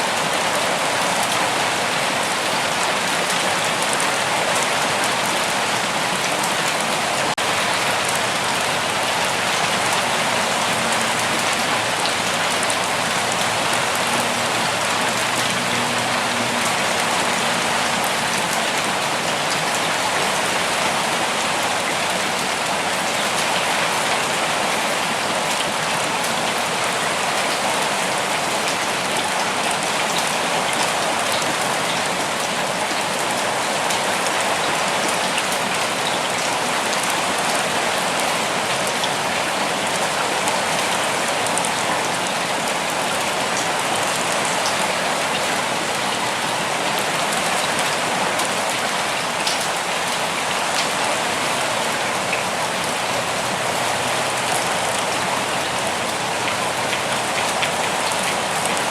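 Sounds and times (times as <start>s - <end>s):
rain on leaves: 0.0s - 58.9s.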